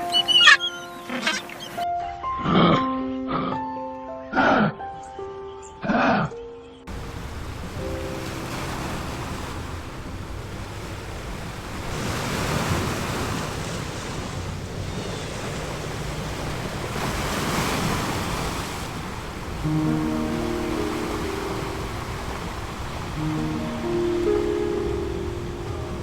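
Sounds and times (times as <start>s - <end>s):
ocean surf rushing: 6.9s - 26.0s.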